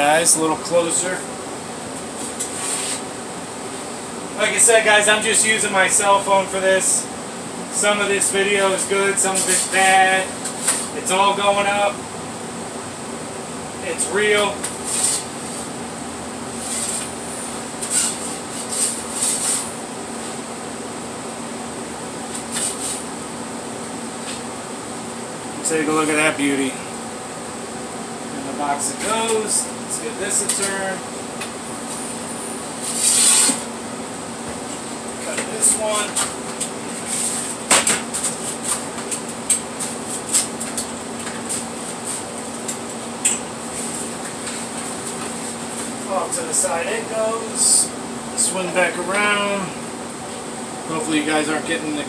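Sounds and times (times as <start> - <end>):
fan hum: 0.0 - 52.0
short scrapes: 2.2 - 3.0, 32.8 - 33.7.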